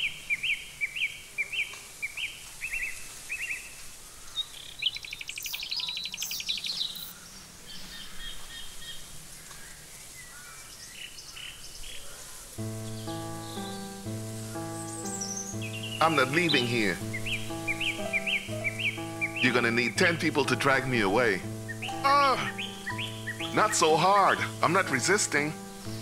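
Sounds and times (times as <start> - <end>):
birds chirping: 0.0 - 26.0
bird trilling: 12.7 - 25.0.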